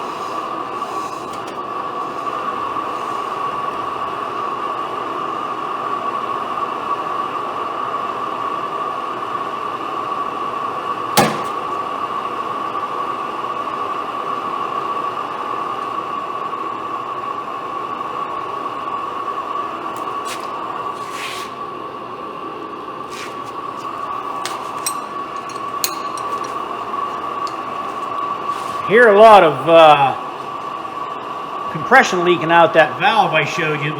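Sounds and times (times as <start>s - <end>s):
engine turning over whirring hiss: 0.0s - 12.2s, 19.3s - 29.0s.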